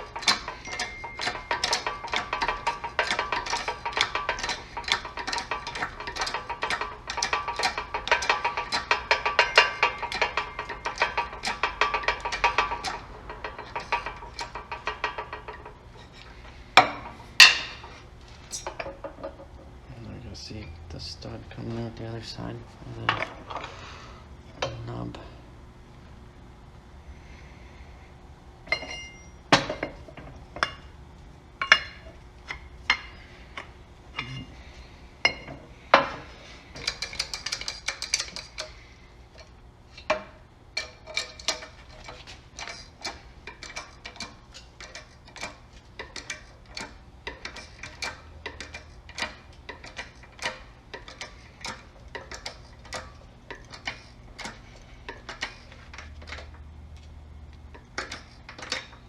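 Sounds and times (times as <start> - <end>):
metal tools clicking on a press: 0.0 - 19.5, 36.8 - 38.8, 39.4 - 56.6, 57.7 - 59.0.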